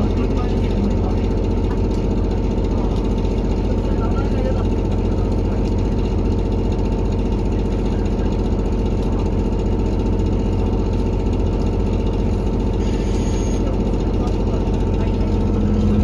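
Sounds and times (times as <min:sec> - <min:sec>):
diesel railcar engine rattling: 0:00.0 - 0:16.0.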